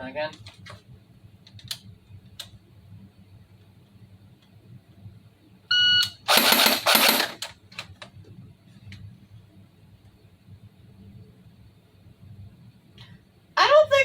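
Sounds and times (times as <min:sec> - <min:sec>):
airsoft gun bursts: 0:06.2 - 0:07.5.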